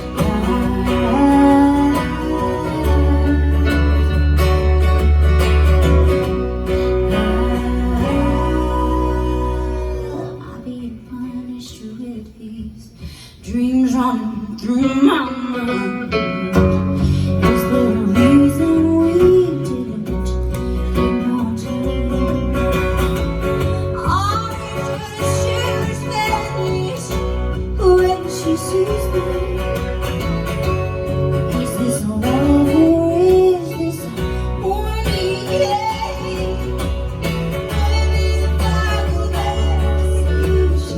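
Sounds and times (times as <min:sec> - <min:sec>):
person singing: 0:00.0 - 0:04.6, 0:06.7 - 0:11.7, 0:31.4 - 0:40.9
country band music: 0:00.0 - 0:11.8, 0:13.4 - 0:40.9.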